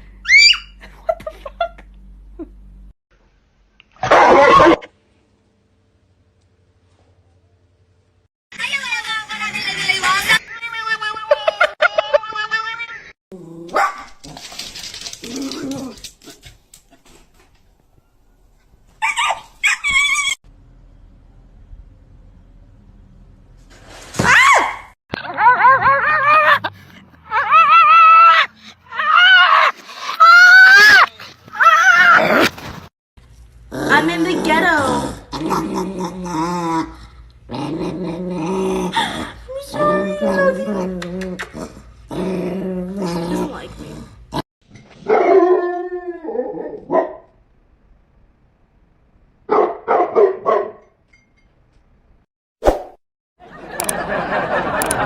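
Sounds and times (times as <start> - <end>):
dog barking: 4.0 - 4.9, 13.7 - 14.1, 45.0 - 45.5, 46.9 - 47.3, 49.5 - 50.9
dog yelping: 19.0 - 20.4, 24.5 - 26.7, 27.3 - 32.4.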